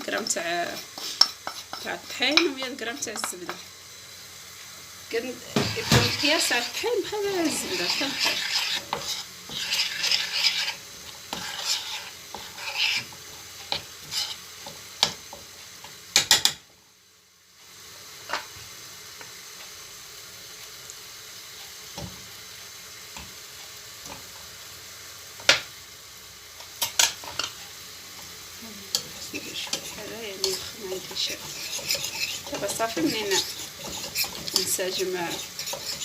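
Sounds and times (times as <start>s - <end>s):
utensil scraping a pan: 0.0s - 3.6s, 5.5s - 15.5s, 28.9s - 36.0s
light sizzle: 0.0s - 36.0s
utensil clicking on pan: 28.9s - 36.0s.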